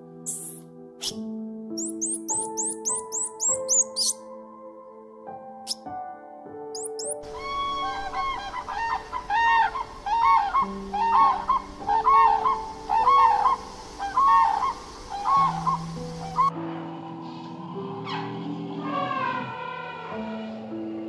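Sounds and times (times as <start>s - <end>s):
soft piano music: 0.0s - 21.0s
bird giving short pitched calls: 1.8s - 4.2s.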